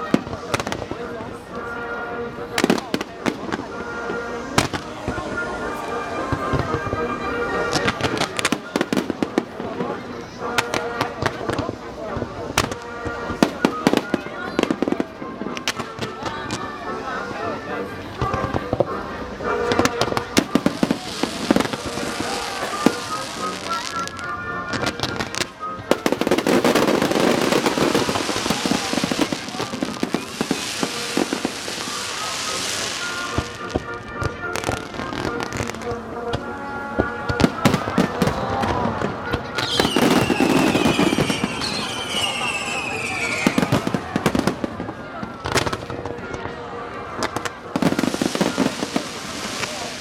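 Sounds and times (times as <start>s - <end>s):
fireworks crackling: 0.0s - 50.0s
music over loudspeakers: 0.0s - 50.0s
fireworks bangs: 18.2s - 50.0s
falling firework whistle: 37.3s - 44.5s.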